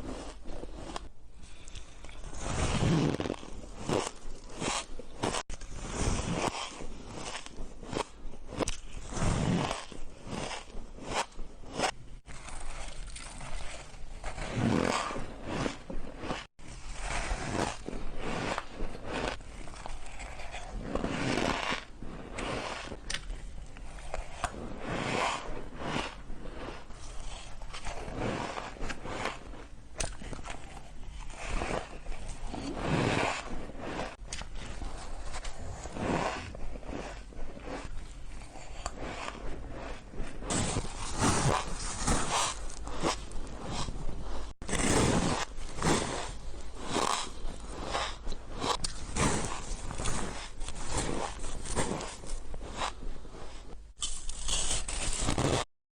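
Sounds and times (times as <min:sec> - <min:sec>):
chewing crunchy ice: 0:00.0 - 0:16.5, 0:17.3 - 0:55.6.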